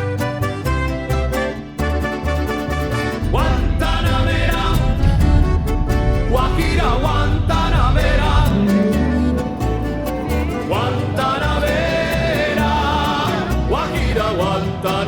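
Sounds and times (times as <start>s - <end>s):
instrumental music with steady beat: 0.0s - 6.8s
person singing: 3.2s - 15.0s.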